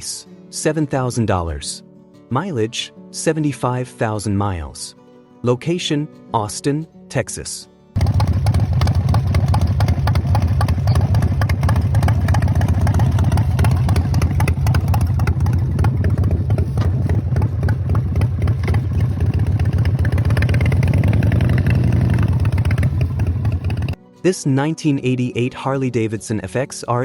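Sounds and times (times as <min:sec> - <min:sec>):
motorcycle engine running: 0:08.0 - 0:24.0.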